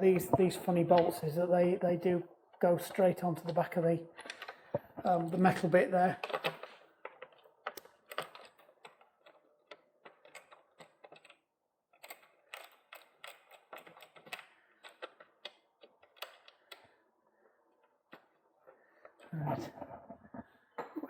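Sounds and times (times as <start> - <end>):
tools and metal parts clicking: 6.2 - 16.8.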